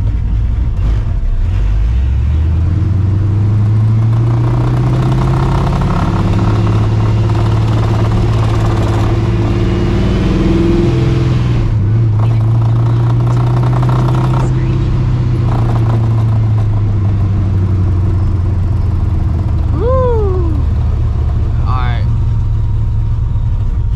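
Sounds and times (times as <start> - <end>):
car engine revving: 0.0 - 23.9.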